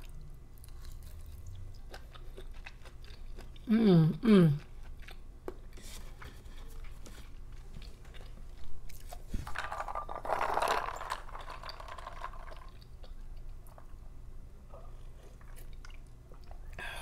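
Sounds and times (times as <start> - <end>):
person chewing food: 0.0 - 3.7, 4.5 - 9.4, 12.4 - 16.8.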